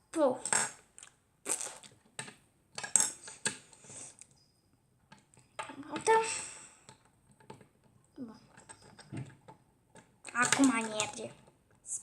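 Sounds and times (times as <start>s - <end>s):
plastic bricks clicking: 8.4s - 11.8s.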